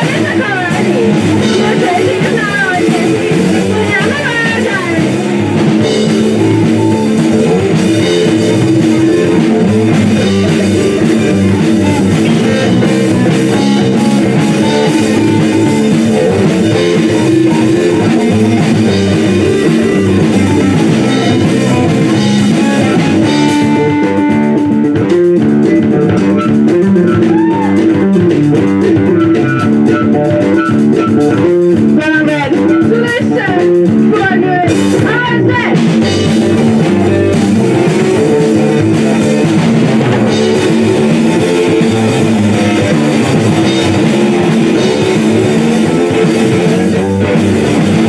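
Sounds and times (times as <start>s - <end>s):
bass guitar: 0.0s - 48.0s
drum kit: 0.0s - 48.0s
electric guitar: 0.0s - 48.0s.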